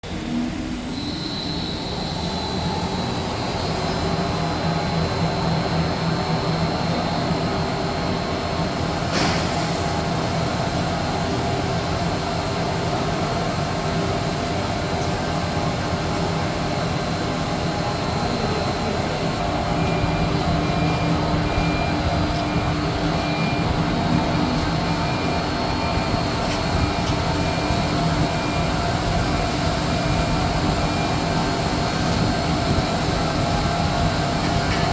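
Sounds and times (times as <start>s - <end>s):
lathe machine hum and whine: 0.0s - 34.9s.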